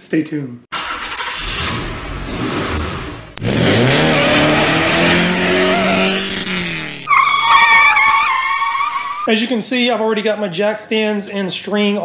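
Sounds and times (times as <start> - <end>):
engine and road noise: 0.7 - 8.2.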